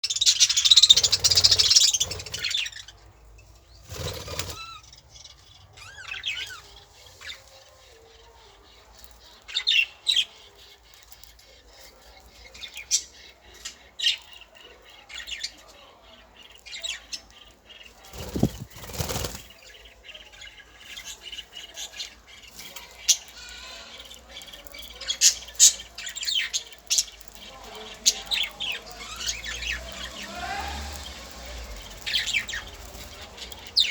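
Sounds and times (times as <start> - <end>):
birds chirping: 0.0 - 33.9
wings flapping: 0.8 - 2.6, 3.8 - 4.7, 18.1 - 19.6.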